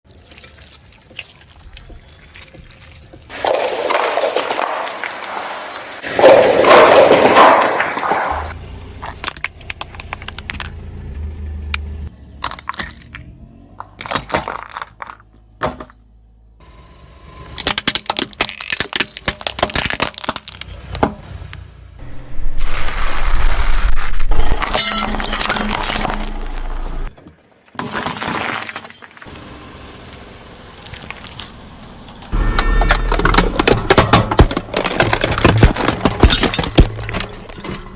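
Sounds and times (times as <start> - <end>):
car crushing objects: 3.2 - 10.8, 12.4 - 16.1, 17.5 - 21.2, 22.4 - 29.4, 30.8 - 37.9
cracking and snapping: 17.6 - 21.6, 33.0 - 37.6.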